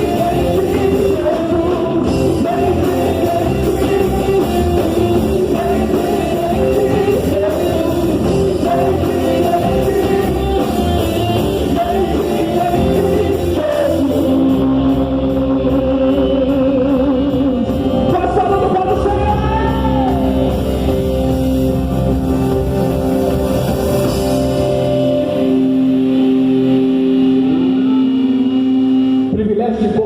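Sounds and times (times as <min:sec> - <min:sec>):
person singing: 0:00.0 - 0:20.7
rock band playing: 0:00.0 - 0:30.0.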